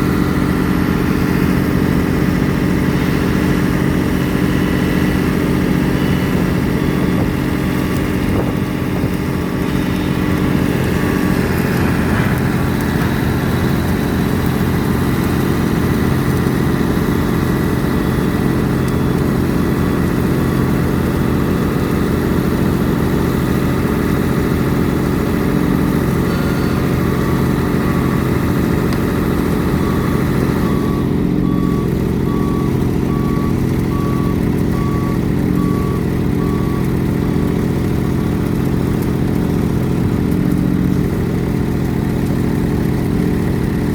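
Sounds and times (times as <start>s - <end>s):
large diesel engine running: 0.0s - 43.9s
short beep: 26.2s - 28.8s, 29.7s - 36.9s.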